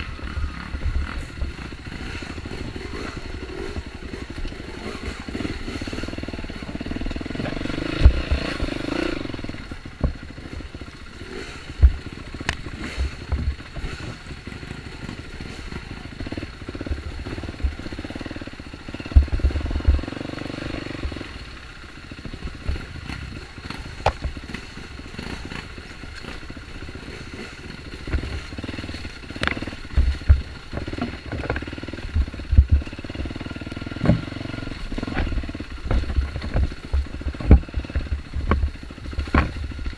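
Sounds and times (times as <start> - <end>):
dirt bike engine revving: 0.0 - 39.9
knocks and low thumps: 11.8 - 13.7, 19.1 - 20.1, 29.4 - 33.2, 33.9 - 34.4, 35.0 - 39.9.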